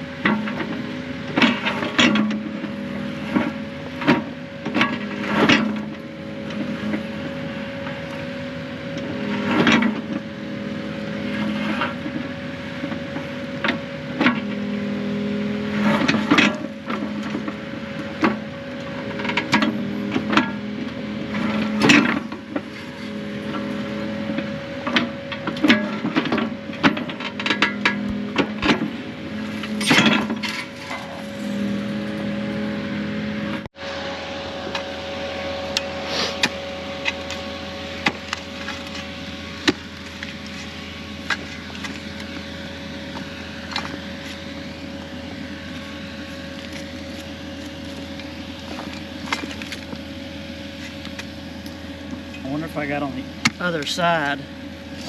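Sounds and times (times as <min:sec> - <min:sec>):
excavator engine and hydraulics: 0:00.0 - 0:55.0
steady whine: 0:00.0 - 0:55.0
sharp metal clanks and knocks: 0:24.8 - 0:28.9, 0:29.5 - 0:31.7.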